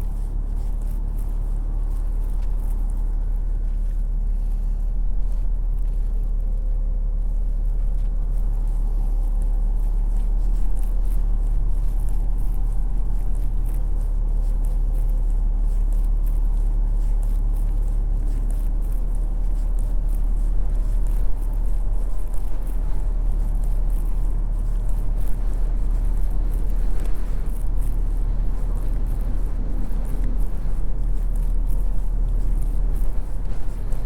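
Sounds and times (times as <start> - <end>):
low rumble of city ambience: 0.0 - 34.0.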